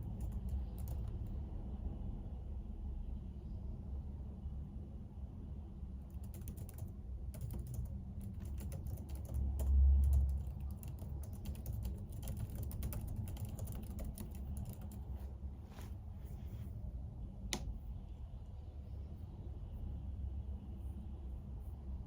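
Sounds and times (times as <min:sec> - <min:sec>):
computer keyboard typing: 0:00.0 - 0:01.4, 0:06.1 - 0:15.2
steady low hum: 0:00.0 - 0:22.0.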